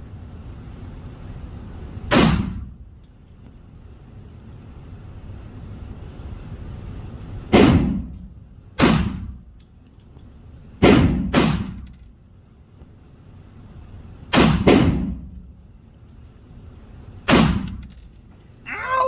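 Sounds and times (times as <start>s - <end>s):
gunshots with echo: 7.6s - 8.1s.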